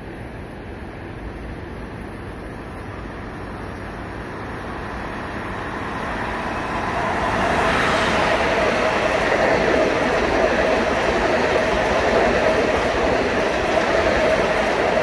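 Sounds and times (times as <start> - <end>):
train rumble and wheel noise: 0.0 - 15.0
train whine: 0.0 - 15.0.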